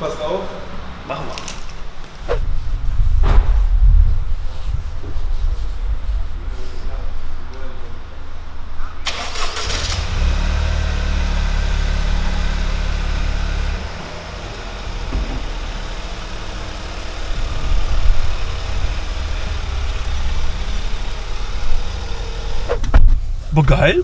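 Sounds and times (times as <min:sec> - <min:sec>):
car engine idling: 0:06.8 - 0:24.0.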